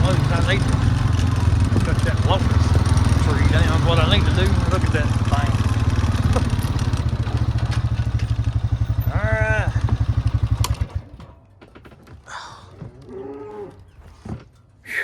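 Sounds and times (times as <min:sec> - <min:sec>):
farm vehicle engine idling: 0:00.0 - 0:11.2
light clanks and rattles: 0:00.0 - 0:14.8.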